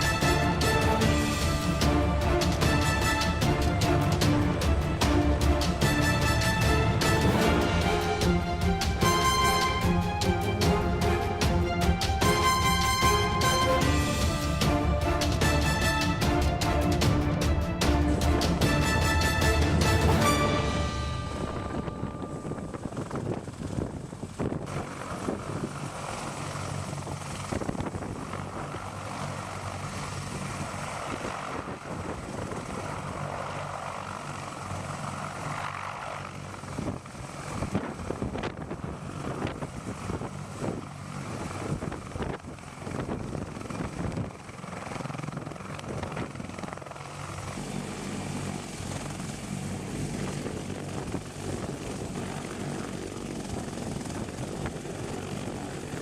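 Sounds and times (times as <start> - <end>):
helicopter rotors and engines humming: 0.0 - 56.0.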